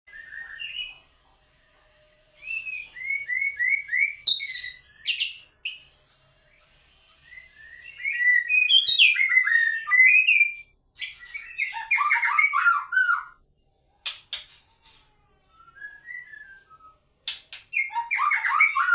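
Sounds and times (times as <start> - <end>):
songbird singing varied song: 2.4 - 13.2.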